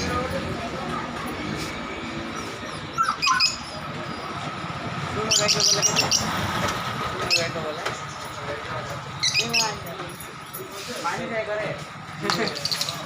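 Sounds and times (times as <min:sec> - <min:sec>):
budgerigars chirping: 0:05.2 - 0:06.4, 0:09.2 - 0:09.8.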